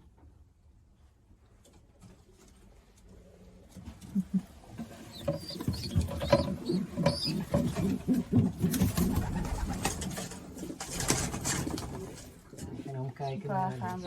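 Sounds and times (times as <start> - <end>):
pigeons cooing: 4.0 - 12.8.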